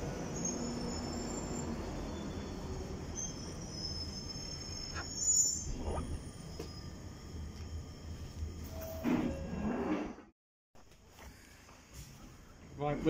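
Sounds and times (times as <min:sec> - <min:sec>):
high-pitched squeal: 0:00.0 - 0:07.0.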